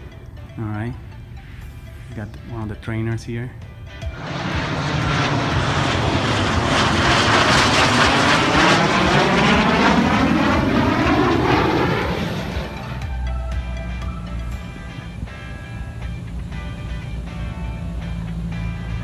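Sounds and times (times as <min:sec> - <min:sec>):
aircraft engine flying past: 0:00.0 - 0:13.1.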